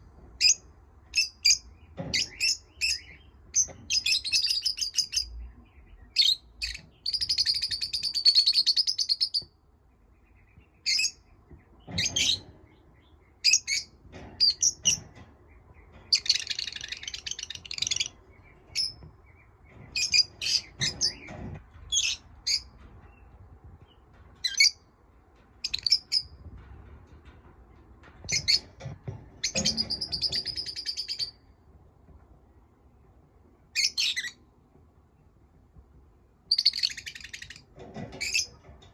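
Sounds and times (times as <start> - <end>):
parrots chirping: 36.5 - 37.6.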